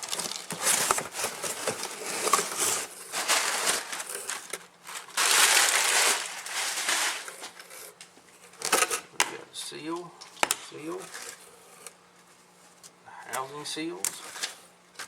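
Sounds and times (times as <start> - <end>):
packaging crinkling and rustling: 0.0 - 9.1, 13.9 - 15.0.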